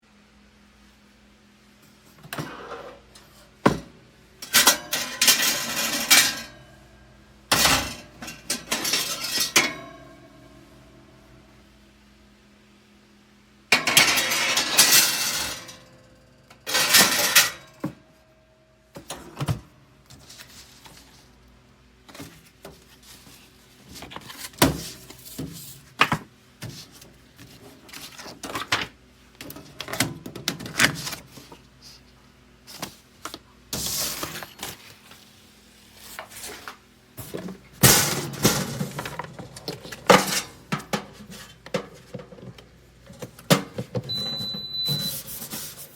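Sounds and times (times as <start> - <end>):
items clinking and knocking: 37.2 - 45.1.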